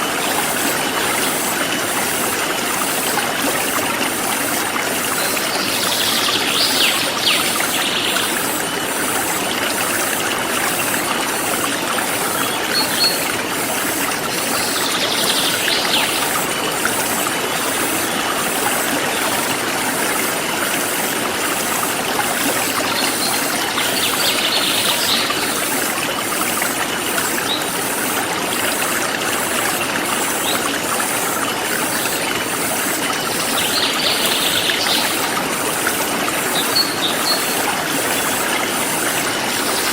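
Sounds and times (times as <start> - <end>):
stream water rushing: 0.0 - 39.9
bird song: 5.2 - 8.3, 22.9 - 25.4, 33.5 - 35.2, 36.6 - 37.6.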